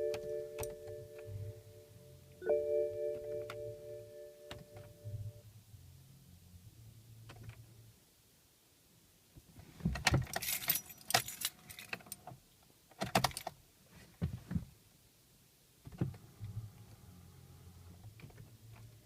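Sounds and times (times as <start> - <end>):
car keys jangling: 10.2 - 12.2.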